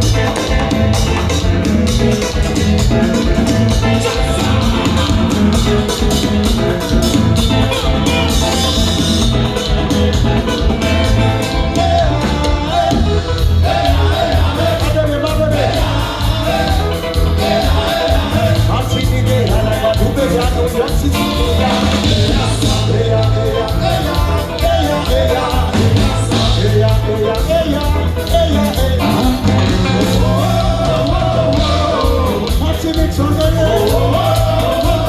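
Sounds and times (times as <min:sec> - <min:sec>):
band playing live: 0:00.0 - 0:35.0
person singing: 0:02.8 - 0:09.7, 0:10.5 - 0:35.0.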